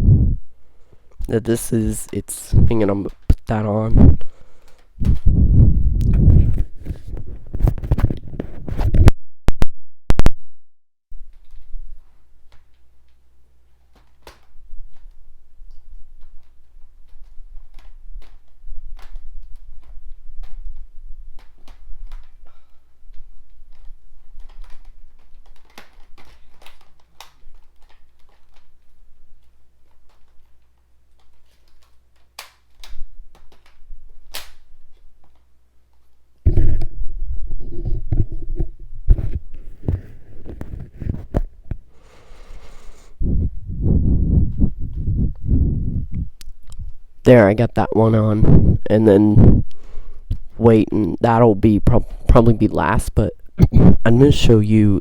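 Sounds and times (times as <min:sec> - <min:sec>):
microphone rubbing and thumping: 0:00.0 - 0:00.5, 0:01.2 - 0:10.4, 0:36.4 - 0:50.6, 0:53.5 - 0:54.3
low electrical hum: 0:00.0 - 0:08.8, 0:11.1 - 0:55.0
plastic parts clicking and knocking: 0:12.4 - 0:36.9.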